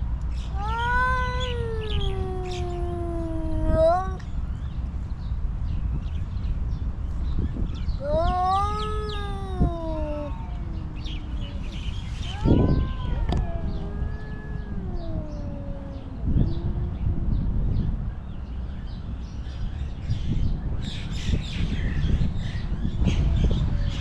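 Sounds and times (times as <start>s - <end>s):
cat meowing: 0.4s - 4.3s, 8.0s - 17.6s
steady low rumble: 1.2s - 24.0s.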